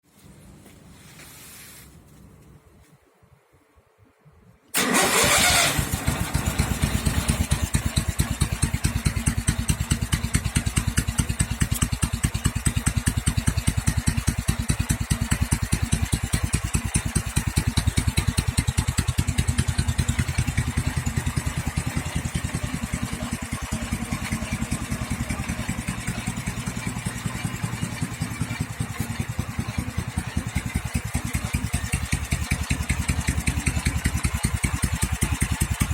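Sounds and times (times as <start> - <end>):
motorcycle engine starting and idling: 4.7 - 35.9.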